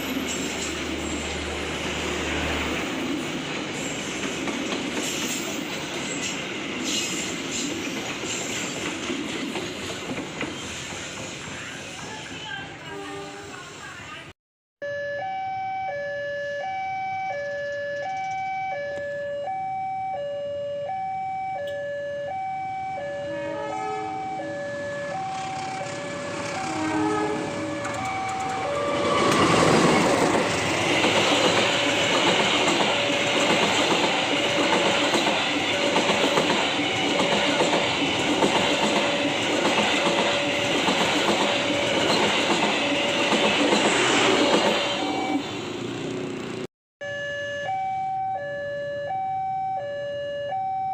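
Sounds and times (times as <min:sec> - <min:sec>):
diesel train passing: 0:00.0 - 0:14.3, 0:22.3 - 0:46.7
level crossing alarm two-tone: 0:14.8 - 0:26.8, 0:27.7 - 0:29.6, 0:44.9 - 0:45.5, 0:47.0 - 0:50.9.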